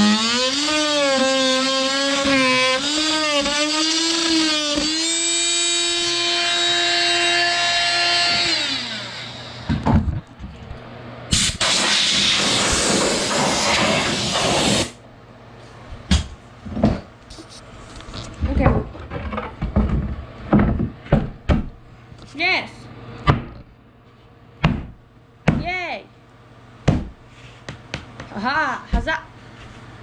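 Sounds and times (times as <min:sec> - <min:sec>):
power drill whining: 0:00.0 - 0:09.7.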